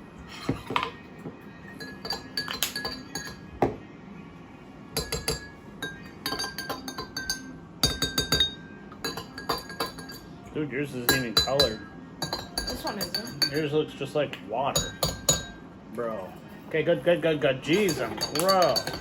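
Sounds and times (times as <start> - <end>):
spoons clinking in glasses: 1.8 - 3.5, 5.0 - 10.3, 11.1 - 13.7, 14.8 - 15.6, 17.7 - 19.0.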